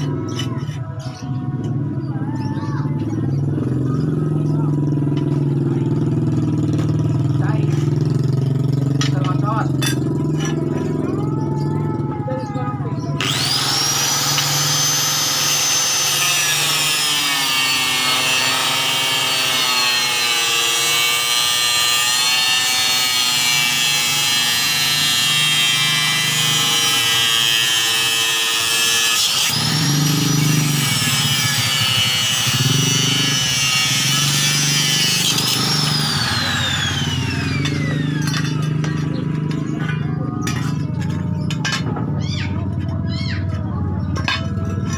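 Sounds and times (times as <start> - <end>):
high-speed electric motor whine: 13.2 - 38.3.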